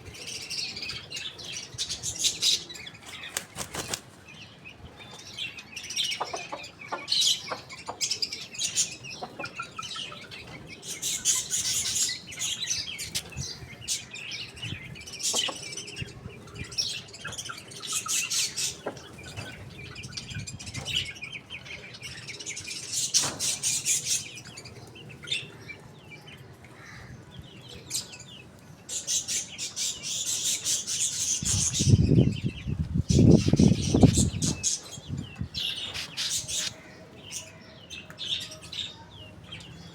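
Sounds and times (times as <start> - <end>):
small birds chirping: 0.0 - 39.9
wings flapping: 3.0 - 4.2.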